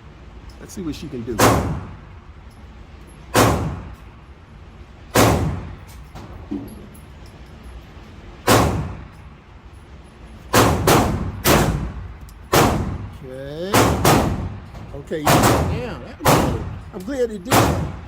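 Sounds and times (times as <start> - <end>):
pistol shots: 1.4 - 2.0, 3.3 - 4.0, 5.1 - 5.8, 8.5 - 9.1, 10.5 - 13.1, 13.7 - 14.6, 15.2 - 16.8, 17.5 - 18.0.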